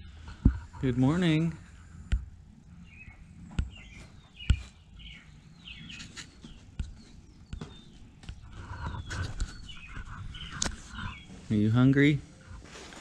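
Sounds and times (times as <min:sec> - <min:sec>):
birds chirping: 0:00.0 - 0:13.0
shuffling: 0:03.8 - 0:13.0.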